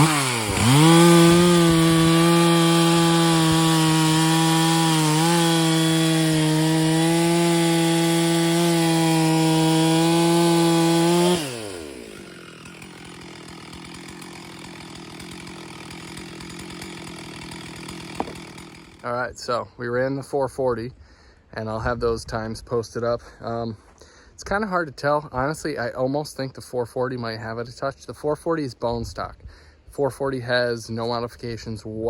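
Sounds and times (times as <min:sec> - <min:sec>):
chainsaw cutting wood: 0:00.0 - 0:19.1.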